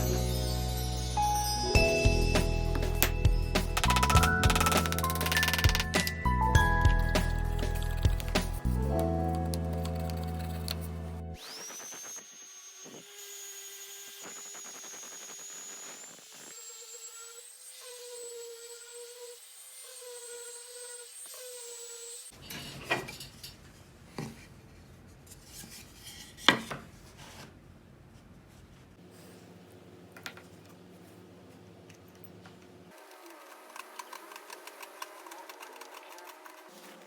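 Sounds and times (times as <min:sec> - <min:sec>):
power tool whining on wood: 0:11.4 - 0:22.3, 0:32.9 - 0:37.0.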